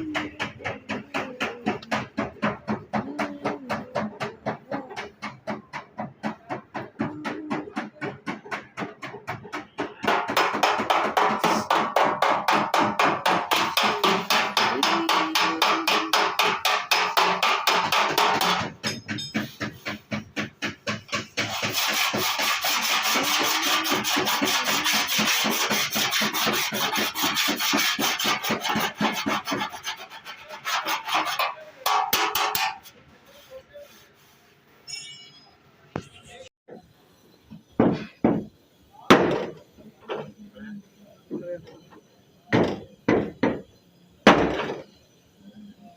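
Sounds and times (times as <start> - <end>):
hand sanding car body panel: 20.8 - 31.6.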